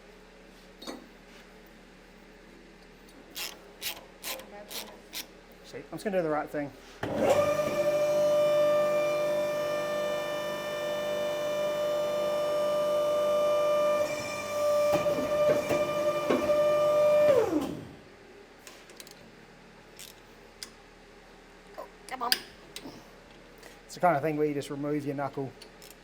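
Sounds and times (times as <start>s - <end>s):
power tool motor whining: 7.1s - 17.9s.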